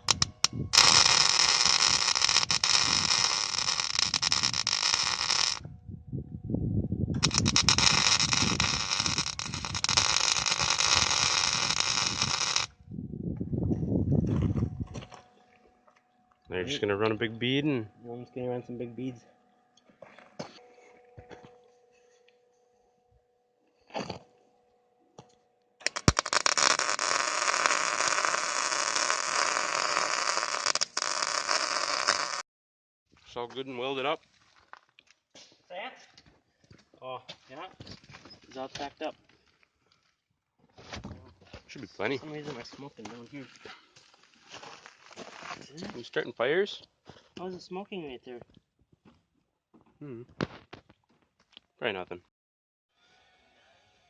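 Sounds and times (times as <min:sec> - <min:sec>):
arc welder crackling hiss: 0:00.0 - 0:05.6, 0:07.2 - 0:12.8, 0:25.8 - 0:32.4.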